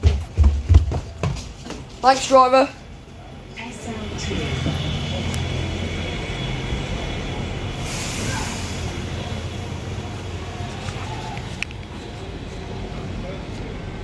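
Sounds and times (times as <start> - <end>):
bus engine idling: 1.8 - 14.0
air brake hiss: 7.7 - 9.1.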